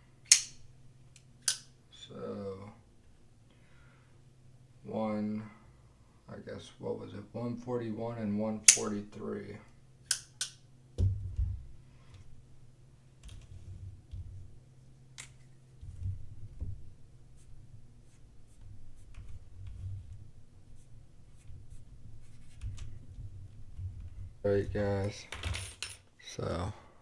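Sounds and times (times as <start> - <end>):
soft handling bumps: 11.0 - 12.4, 21.3 - 26.0.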